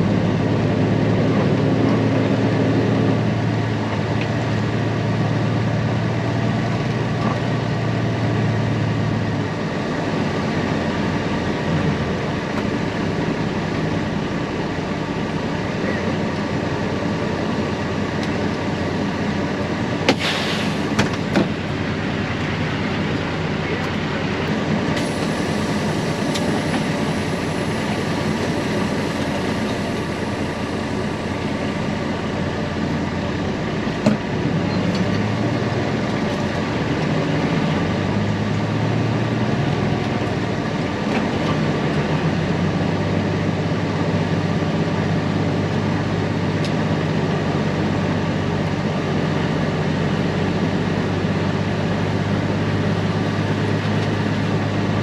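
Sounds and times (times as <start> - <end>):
deep engine drone: 0.0 - 55.0
heavy machinery running: 6.0 - 43.2.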